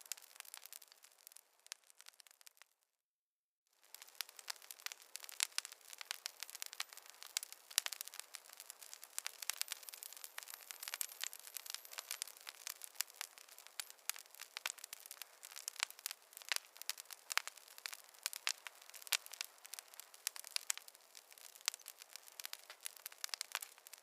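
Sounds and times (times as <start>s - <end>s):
wood fire crackling: 0.0s - 2.7s, 3.8s - 24.0s.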